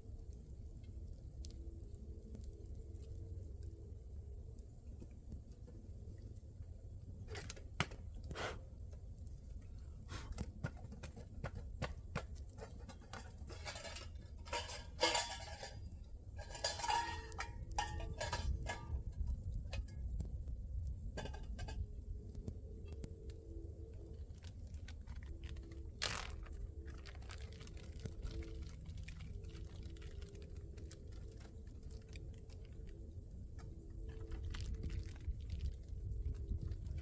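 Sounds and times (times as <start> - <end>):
utensil clinking on metal cookware: 13.0 - 19.0.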